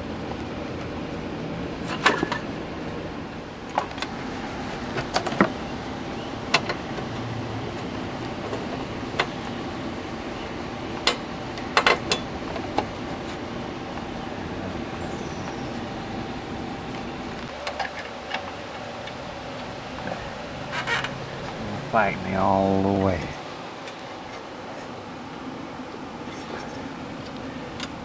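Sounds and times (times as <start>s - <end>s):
steady background hiss: 0.0s - 28.0s.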